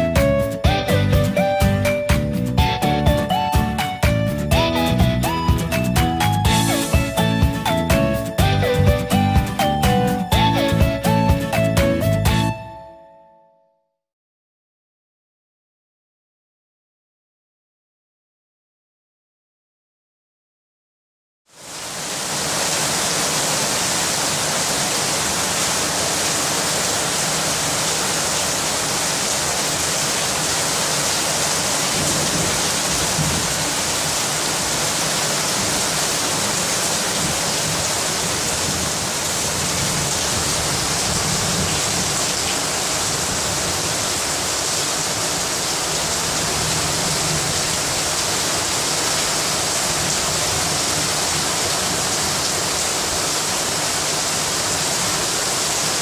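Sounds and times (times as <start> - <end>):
heavy rain pouring: 2.7 - 10.0, 21.5 - 56.0.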